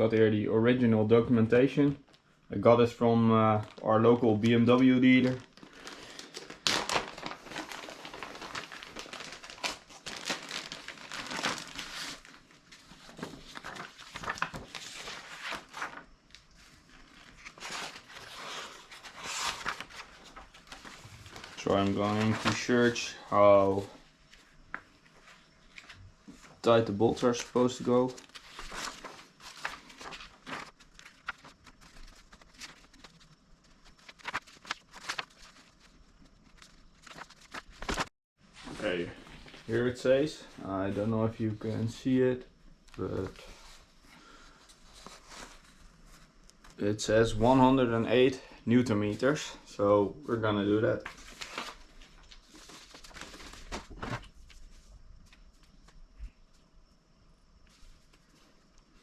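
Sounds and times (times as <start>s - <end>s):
paper pages rustling: 3.6s - 40.0s, 44.5s - 46.8s, 50.4s - 56.0s.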